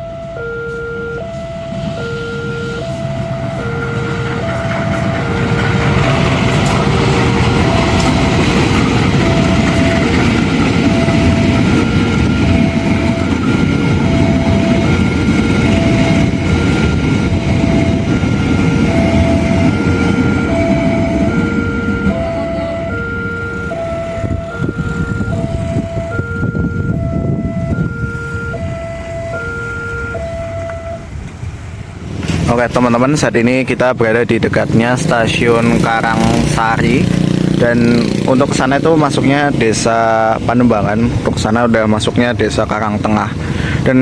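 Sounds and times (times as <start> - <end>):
level crossing alarm two tones: 0.0 - 31.2
train rumble and wheel clatter: 0.0 - 44.0.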